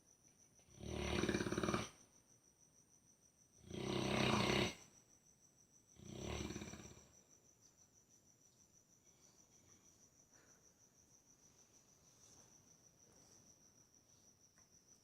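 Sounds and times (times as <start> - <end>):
dog snoring: 0.7 - 2.0, 3.6 - 4.9, 5.9 - 7.2.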